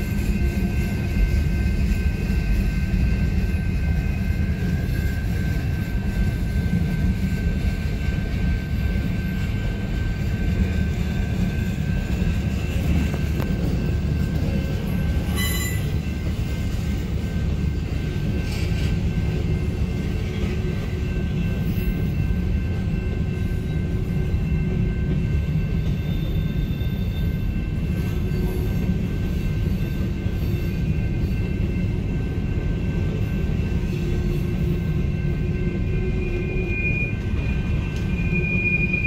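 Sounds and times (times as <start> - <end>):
train wheels rumbling on rails: 0.0 - 39.0
faint high ringing: 20.8 - 39.0.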